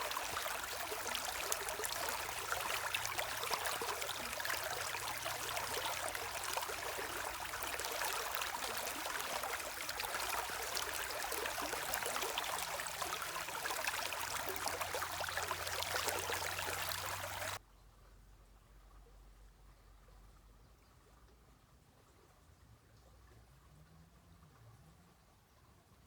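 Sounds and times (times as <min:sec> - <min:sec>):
stream water rushing: 0:00.0 - 0:17.6.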